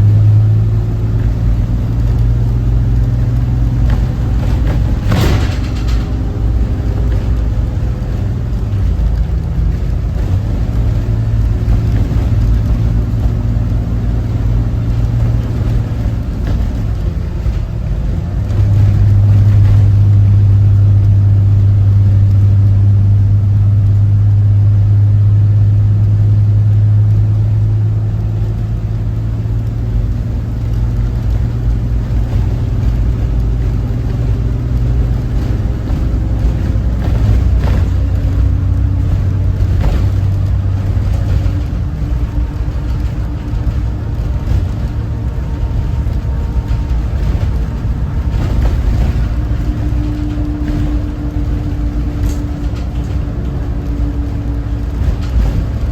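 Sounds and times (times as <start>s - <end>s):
bus diesel engine droning: 0.0s - 55.9s
short rattles: 1.2s - 20.9s.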